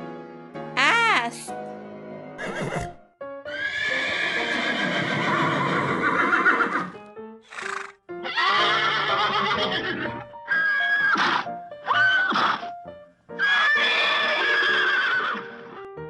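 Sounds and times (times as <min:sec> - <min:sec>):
background music: 0:00.0 - 0:16.0
horse whinnying: 0:02.4 - 0:12.7, 0:13.4 - 0:15.8.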